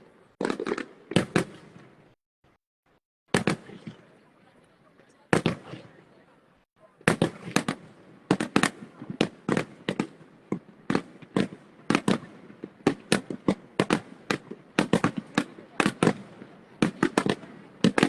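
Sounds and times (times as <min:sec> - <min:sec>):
fireworks banging: 0:00.3 - 0:02.0, 0:03.3 - 0:04.2, 0:05.3 - 0:06.0, 0:07.0 - 0:18.0.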